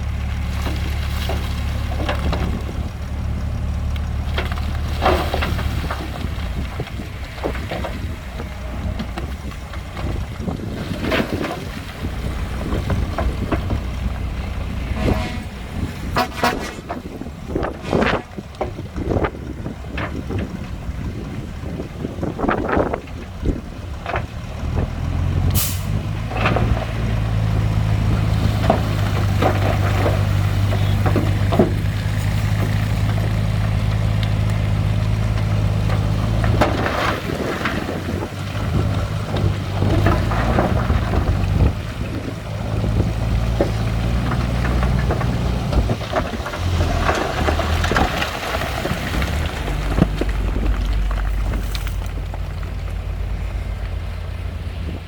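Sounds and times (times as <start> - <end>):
heavy diesel engine running: 0.0 - 55.0
metallic clanks and knocks: 14.7 - 20.5.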